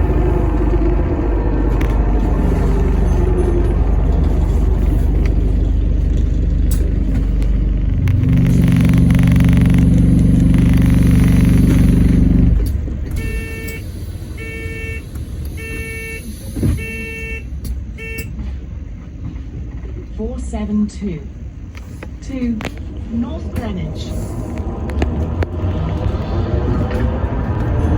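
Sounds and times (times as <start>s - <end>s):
loud steady low hum: 0.0s - 16.2s
bus drivetrain rumble: 0.0s - 27.9s
electronic door-warning beeps: 15.6s - 18.3s.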